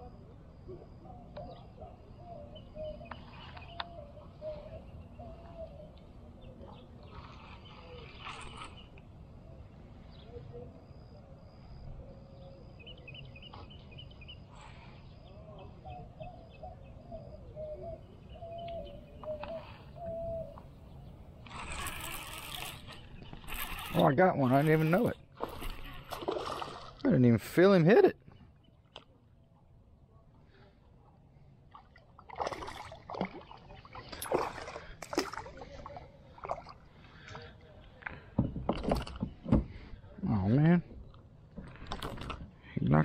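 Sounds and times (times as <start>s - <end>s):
birds chirping and singing: 1.0s - 11.0s, 11.7s - 25.9s.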